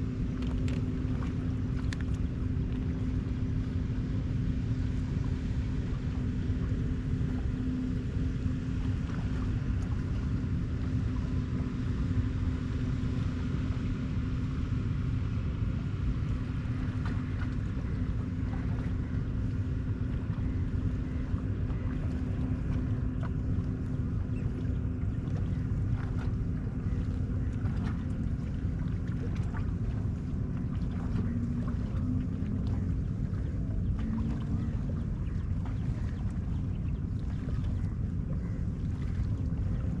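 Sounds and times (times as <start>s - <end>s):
engine-like hum: 0.0s - 40.0s
low rumble: 0.0s - 40.0s.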